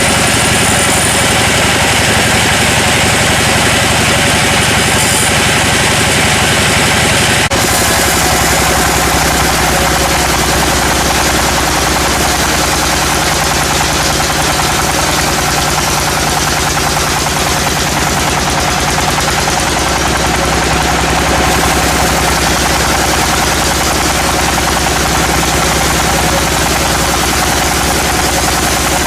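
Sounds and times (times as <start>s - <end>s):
fast even machine rattle: 0.0s - 29.0s
sawmill engine hum: 0.0s - 29.0s.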